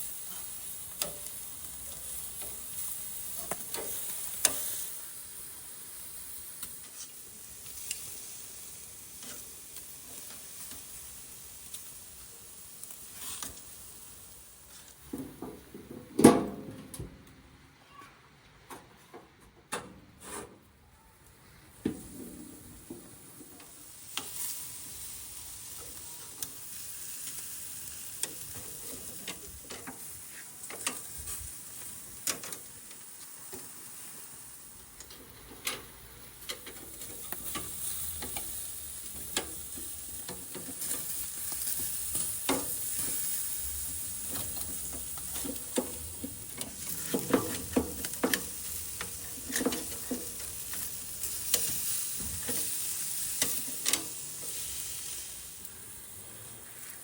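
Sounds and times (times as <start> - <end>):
meat sizzling over charcoal: 0.0 - 16.7, 21.3 - 57.0
sharp pops and crackles: 21.8 - 33.8, 34.8 - 55.9.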